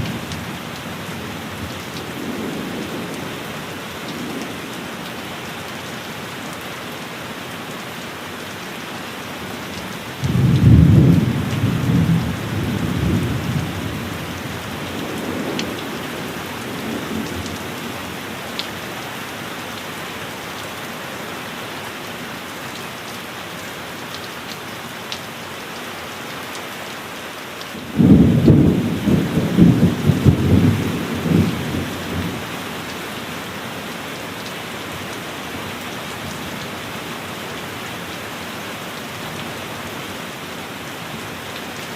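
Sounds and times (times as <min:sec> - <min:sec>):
heavy rain: 0:00.0 - 0:41.9
thunder clap and rumble: 0:10.2 - 0:17.9, 0:27.8 - 0:32.6.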